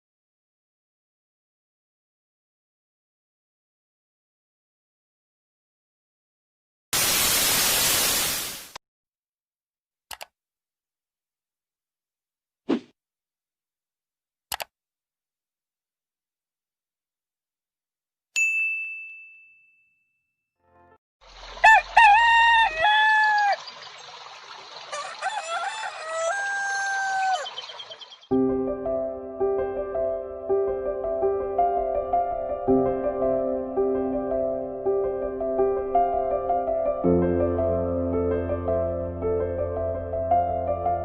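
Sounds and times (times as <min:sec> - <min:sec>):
clicks: 0:10.1 - 0:10.4, 0:14.5 - 0:14.7
rooster crowing: 0:21.3 - 0:23.7, 0:24.9 - 0:28.2.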